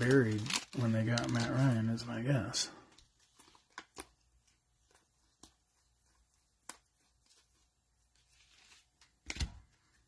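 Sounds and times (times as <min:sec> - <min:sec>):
trading cards handled: 0:02.8 - 0:10.0.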